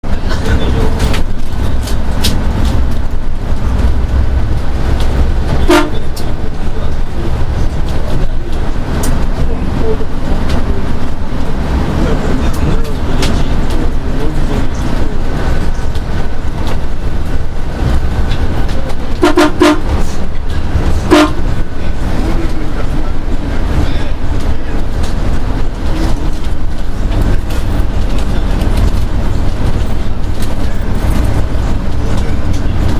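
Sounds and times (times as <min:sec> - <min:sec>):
boat engine droning: 0:00.0 - 0:32.9
horn toots: 0:05.5 - 0:06.3, 0:19.0 - 0:20.1, 0:21.0 - 0:21.6.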